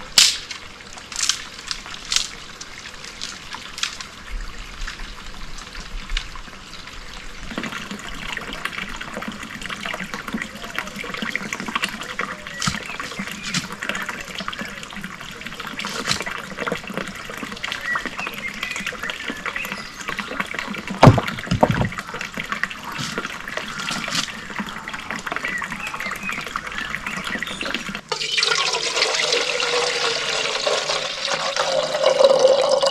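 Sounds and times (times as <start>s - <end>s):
water running and trickling: 0.0s - 32.9s
loud thump: 21.0s - 21.9s.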